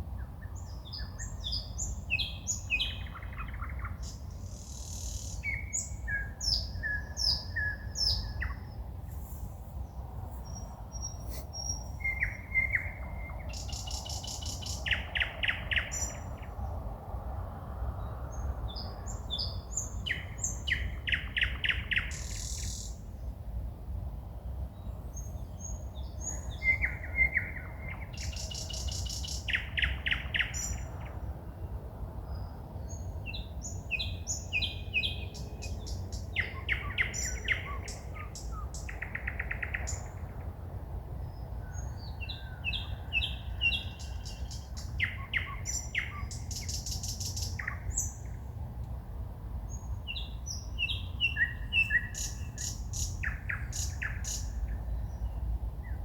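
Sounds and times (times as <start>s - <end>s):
songbird singing trills and whistles: 0.4s - 8.8s, 10.5s - 16.3s, 18.8s - 23.0s, 25.6s - 30.9s, 32.9s - 40.2s, 41.7s - 48.4s, 49.8s - 56.0s.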